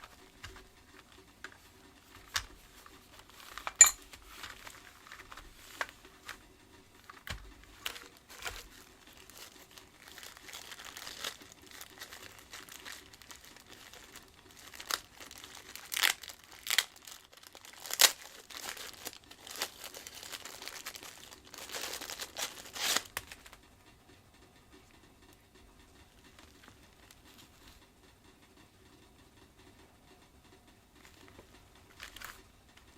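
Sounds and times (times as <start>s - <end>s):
crinkling and rustling: 0.0s - 23.7s, 26.0s - 27.8s, 31.0s - 32.9s
plastic parts clicking: 7.0s - 23.6s.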